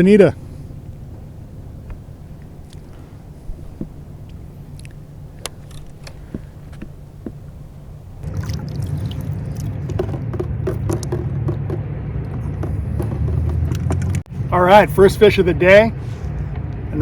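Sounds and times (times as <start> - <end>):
low rumble: 0.0 - 15.0
water splashing around kayak: 0.4 - 11.8
handling clicks: 3.7 - 7.4.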